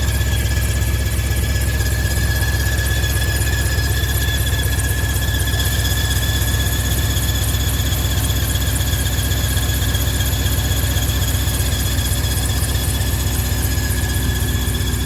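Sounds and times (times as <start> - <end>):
high-pitched whine: 0.0 - 15.0
truck engine idling: 0.0 - 15.0.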